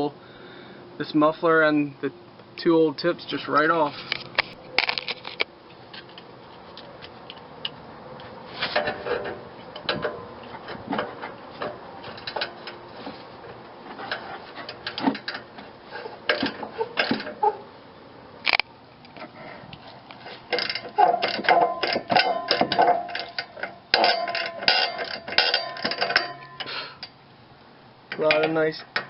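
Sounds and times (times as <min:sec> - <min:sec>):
hand tools clicking on metal: 0:20.5 - 0:27.2, 0:28.1 - 0:29.0.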